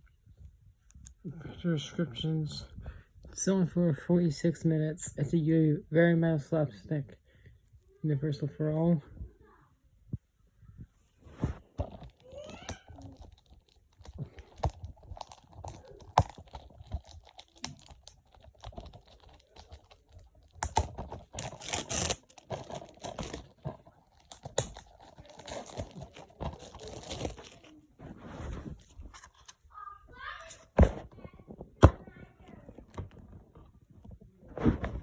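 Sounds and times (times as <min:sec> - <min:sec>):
plastic wrapping crinkling and tearing: 0:11.3 - 0:30.6.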